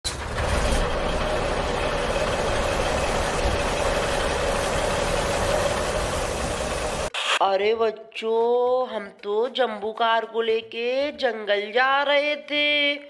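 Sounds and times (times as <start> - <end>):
engine humming: 0.0 - 7.1.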